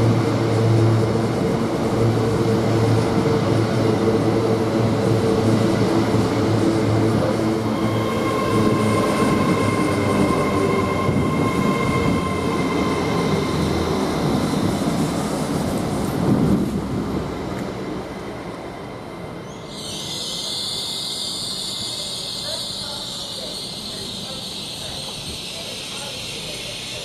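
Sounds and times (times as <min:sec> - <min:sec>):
train wheels rumbling: 0:00.0 - 0:27.0
train brakes squealing: 0:07.7 - 0:15.4, 0:19.4 - 0:27.0.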